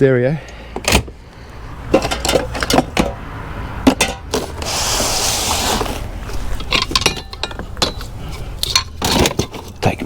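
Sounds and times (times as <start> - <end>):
scrap items knocking and clicking: 1.9 - 3.2
hissing scraping rustle: 4.4 - 6.6.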